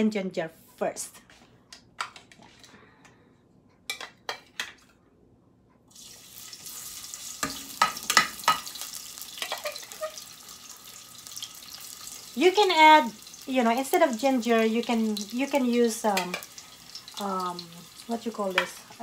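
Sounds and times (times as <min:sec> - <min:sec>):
garlic sizzling in oil: 0:05.9 - 0:19.0.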